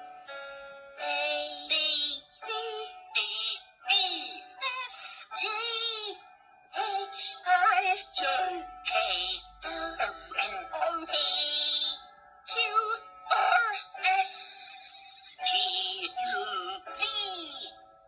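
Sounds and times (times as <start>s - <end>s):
synthetic sung voice over music: 1.0s - 17.8s.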